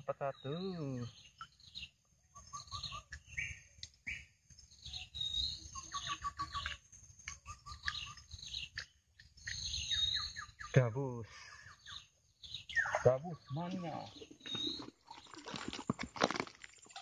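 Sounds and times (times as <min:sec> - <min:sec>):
birds chirping: 0:00.0 - 0:15.7
bird whistled chirps: 0:02.4 - 0:06.8, 0:09.4 - 0:10.8, 0:11.8 - 0:13.6.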